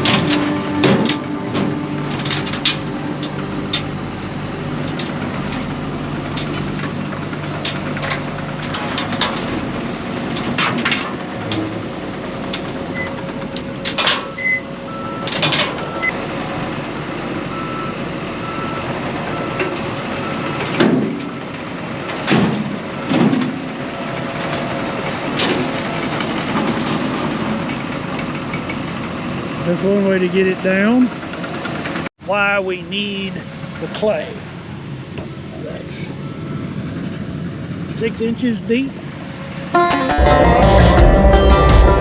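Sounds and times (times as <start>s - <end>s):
backup alarm beeping: 0.0s - 8.8s
diesel earthmoving machine: 0.0s - 13.4s.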